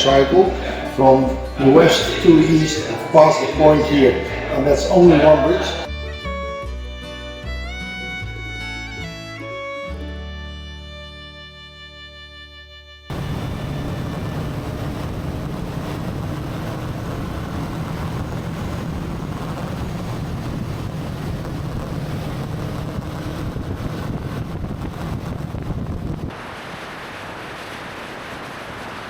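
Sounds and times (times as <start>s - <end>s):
wind noise on microphone: 13.1s - 26.5s
motorcycle engine running: 13.2s - 26.3s.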